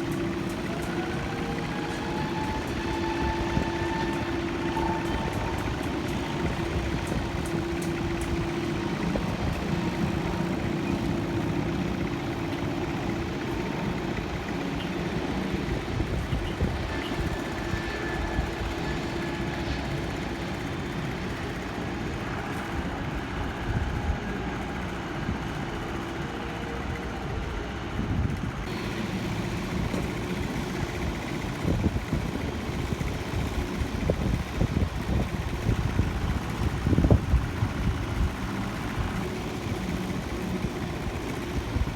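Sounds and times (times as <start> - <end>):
faint steady tones: 0.0 - 41.9
low engine rumble: 0.0 - 41.9.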